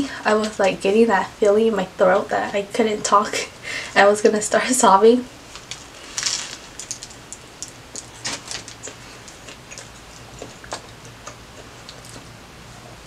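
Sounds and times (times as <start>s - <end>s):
mouth clicks and crunches: 5.5s - 12.4s
chewing sandwich: 5.5s - 13.0s.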